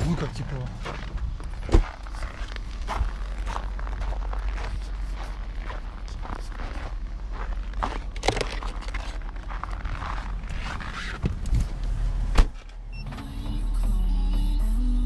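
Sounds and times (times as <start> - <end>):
rustling and clicking handling: 8.0 - 9.4
music: 13.0 - 15.0.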